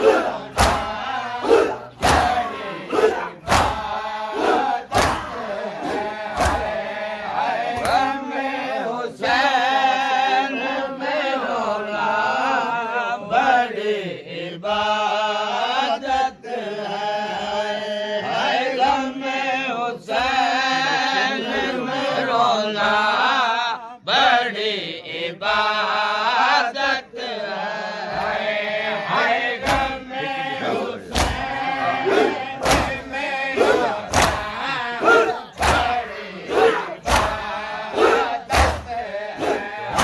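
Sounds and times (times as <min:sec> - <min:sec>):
mourners chanting together: 0:00.0 - 0:40.0
hands beating on chests: 0:00.5 - 0:01.0, 0:02.0 - 0:02.4, 0:03.5 - 0:03.9, 0:04.9 - 0:05.4, 0:06.3 - 0:06.8, 0:31.1 - 0:31.5, 0:32.6 - 0:40.0.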